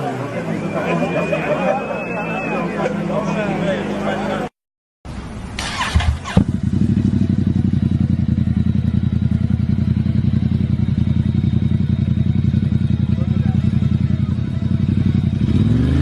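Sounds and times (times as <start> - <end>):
motorcycle engine running: 5.6 - 16.0.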